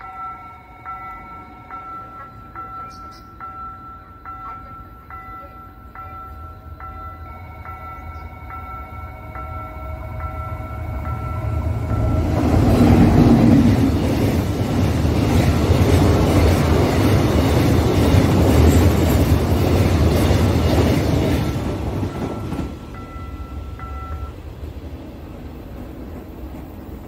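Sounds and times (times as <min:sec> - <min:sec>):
crossing warning bell ringing: 0:00.0 - 0:24.6
train wheels rumbling on rails: 0:00.0 - 0:27.0.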